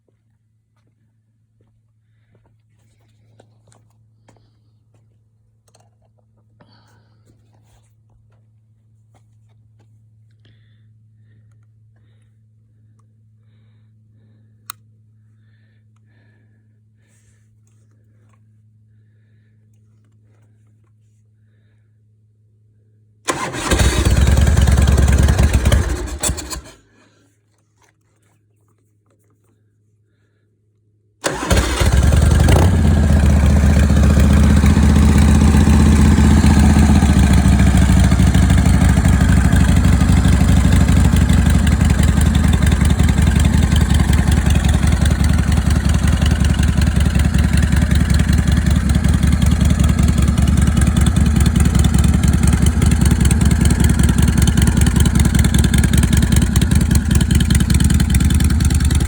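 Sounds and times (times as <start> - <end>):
motorcycle engine starting and idling: 23.3 - 27.2, 31.2 - 59.0.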